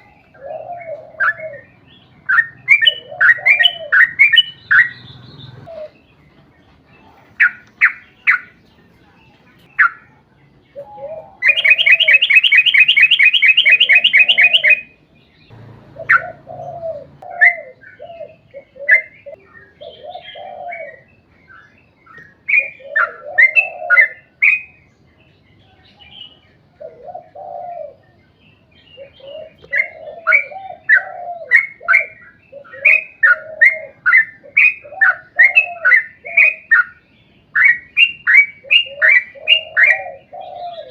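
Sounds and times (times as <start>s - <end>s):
bird singing: 0.0s - 40.9s
bird rapid trill: 2.3s - 5.9s, 11.4s - 14.9s, 15.5s - 17.2s.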